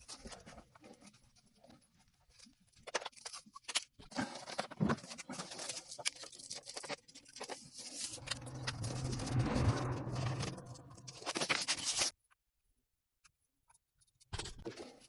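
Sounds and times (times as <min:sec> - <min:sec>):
metallic scraping: 0:07.9 - 0:12.1.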